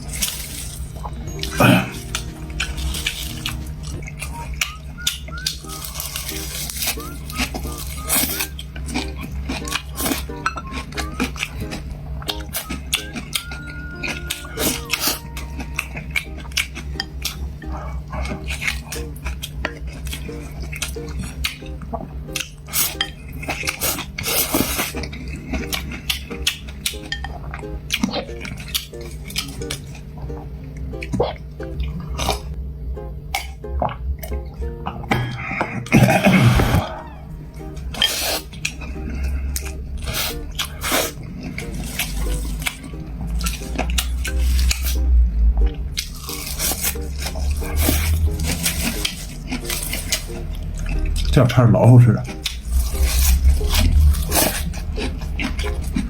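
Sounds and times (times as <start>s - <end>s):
utensils clinking against dishes: 0.0s - 30.0s, 37.8s - 45.0s
chewing clicks: 52.3s - 56.0s.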